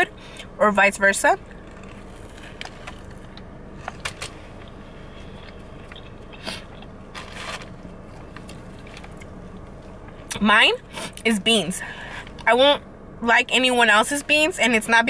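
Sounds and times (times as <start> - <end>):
steady low hum: 0.0 - 15.0
crunchy chewing: 1.4 - 10.3.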